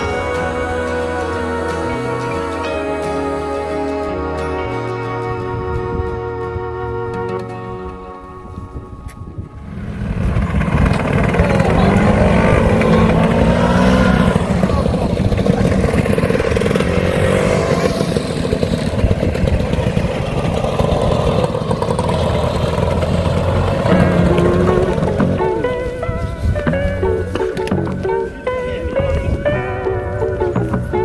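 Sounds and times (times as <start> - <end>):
motor scooter engine running: 0.0 - 4.6, 9.5 - 31.0.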